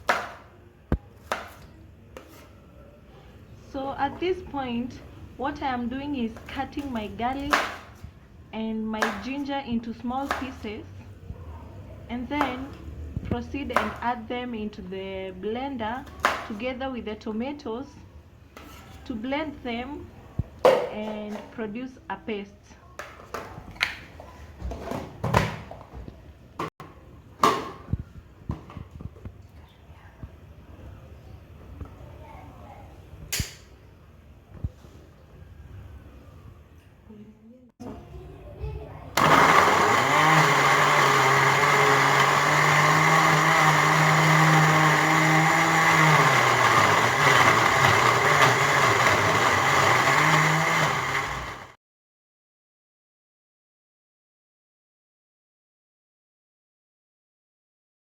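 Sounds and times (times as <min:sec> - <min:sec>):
electric blender running: 0:39.2 - 0:51.8.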